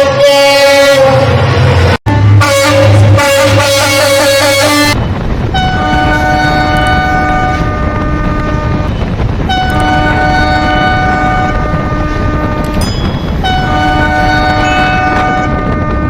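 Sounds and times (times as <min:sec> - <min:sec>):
locomotive chord horn blasts: 0:00.0 - 0:01.4, 0:02.1 - 0:05.0, 0:05.6 - 0:08.9, 0:09.5 - 0:12.8, 0:13.4 - 0:16.0
fast-moving train running: 0:00.0 - 0:16.0.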